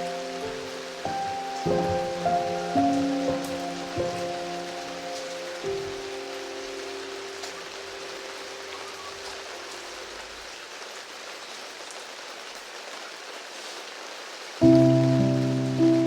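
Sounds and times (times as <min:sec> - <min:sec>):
held piano note: 0:00.0 - 0:09.5
steady rain: 0:00.0 - 0:16.0.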